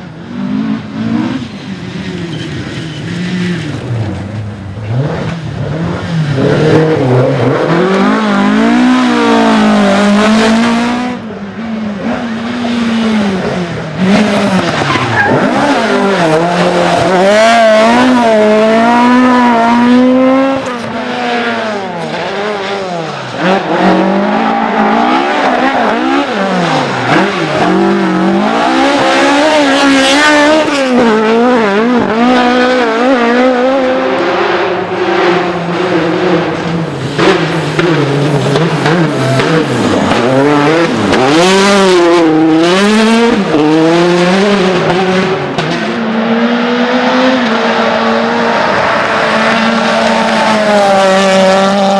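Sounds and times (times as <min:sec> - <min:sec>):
rally car engines revving: 0:00.0 - 0:51.9
tyre squeal: 0:14.6 - 0:17.1.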